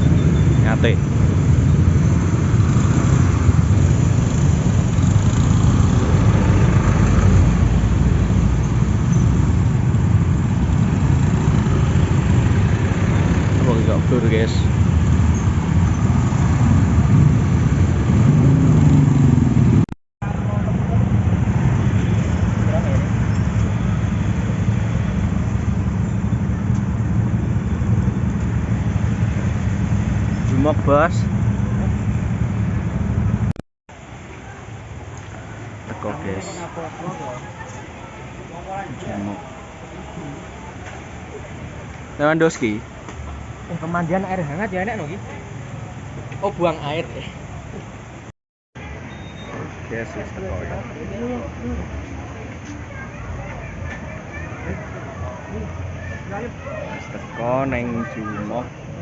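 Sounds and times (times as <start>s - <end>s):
motorcycle engine: 0.0s - 33.6s.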